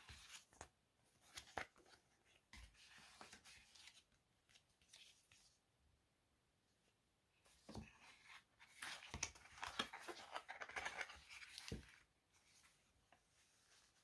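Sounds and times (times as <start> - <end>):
paper and packaging rustling: 8.1 - 12.7.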